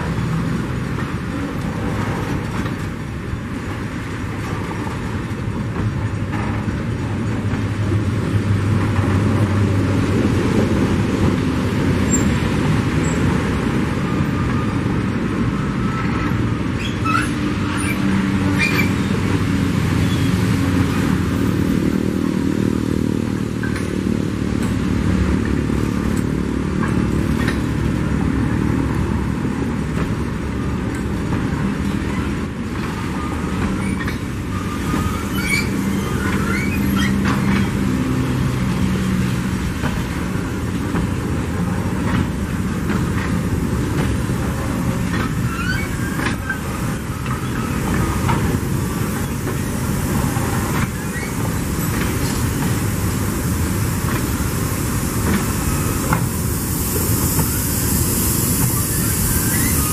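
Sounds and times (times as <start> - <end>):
train wheels rumbling on rail: 0.0 - 59.9
wheel squeaks: 15.5 - 19.4, 20.0 - 21.2, 31.8 - 38.2, 43.0 - 52.8, 57.0 - 59.9.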